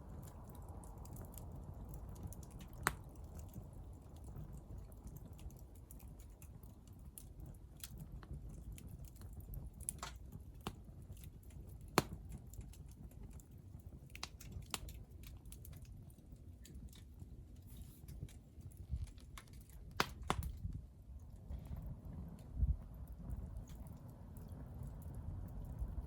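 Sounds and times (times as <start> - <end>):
wood fire crackling: 0.0 - 26.0
low steady rumble: 16.0 - 26.0.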